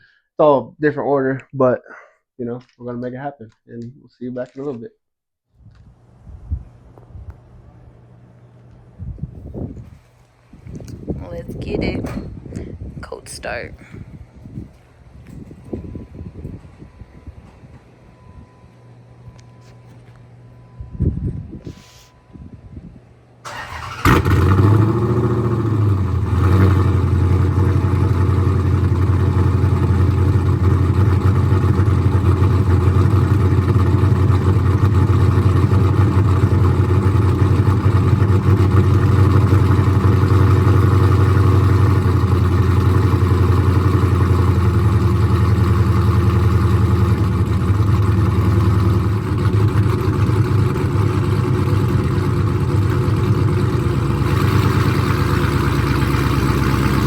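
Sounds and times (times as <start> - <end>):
car engine revving and idling: 23.7 - 57.0.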